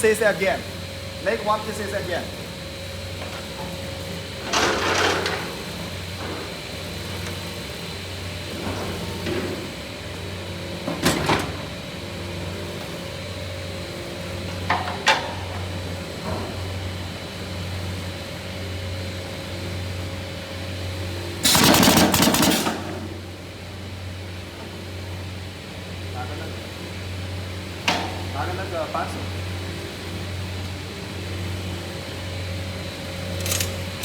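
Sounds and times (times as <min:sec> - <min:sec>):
loud noisy machine burst: 0:21.4 - 0:23.0
machine humming: 0:21.4 - 0:23.4.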